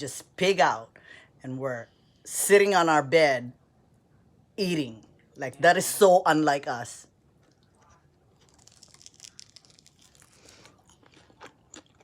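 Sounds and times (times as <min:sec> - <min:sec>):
paper packaging crinkling: 0:08.4 - 0:11.2.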